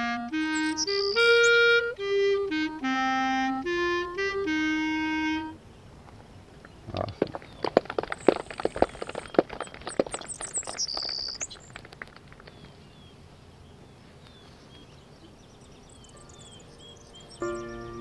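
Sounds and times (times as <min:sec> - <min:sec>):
songbirds chirping: 0:00.0 - 0:18.0
music with sustained chords: 0:16.2 - 0:18.0.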